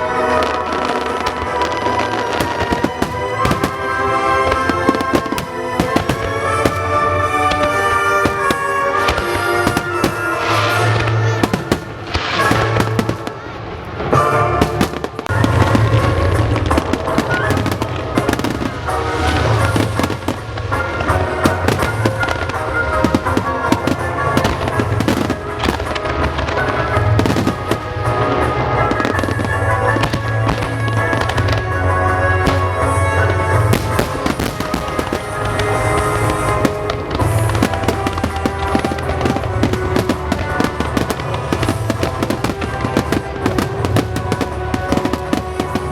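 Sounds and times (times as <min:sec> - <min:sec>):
fireworks bangs and crackling: 0:00.0 - 0:45.9.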